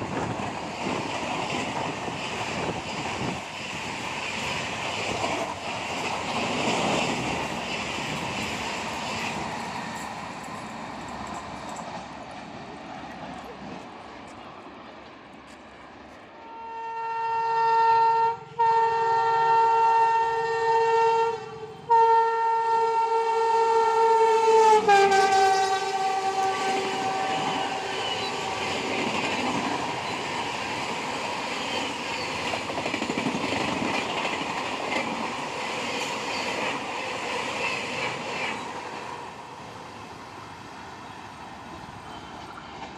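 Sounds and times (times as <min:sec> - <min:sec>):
train coaches rushing past: 0:00.0 - 0:16.7, 0:22.7 - 0:42.9
locomotive horn blasts: 0:16.4 - 0:28.7.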